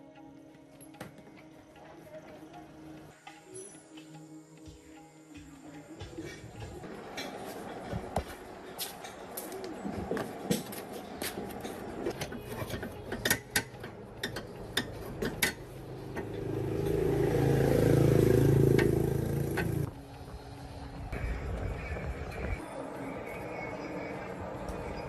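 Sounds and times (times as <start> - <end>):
engine running: 11.4 - 21.3.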